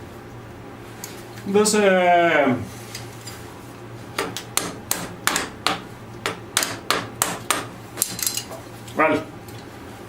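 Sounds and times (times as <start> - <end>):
hammer tapping on metal: 4.2 - 8.3.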